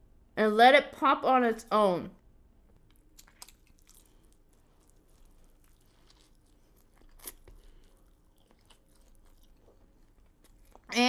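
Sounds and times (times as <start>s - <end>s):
chewing food with crunches: 2.6s - 11.0s.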